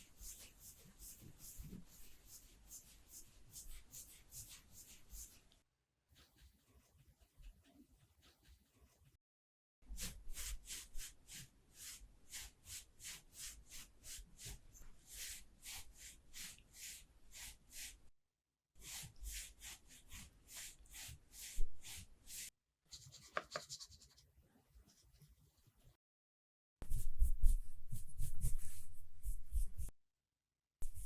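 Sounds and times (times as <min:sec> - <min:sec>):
makeup applicator swishing strokes: 0:26.9 - 0:29.9.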